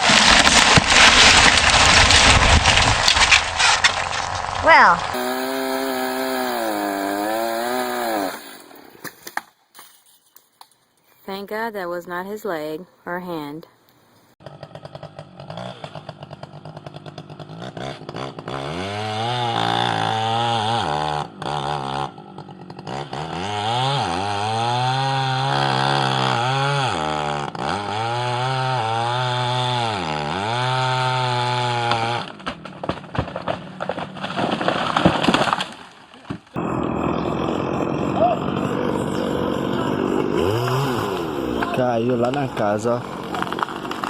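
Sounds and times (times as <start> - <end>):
chainsaw engine revving: 0.0 - 9.1, 14.4 - 32.4, 36.6 - 44.0.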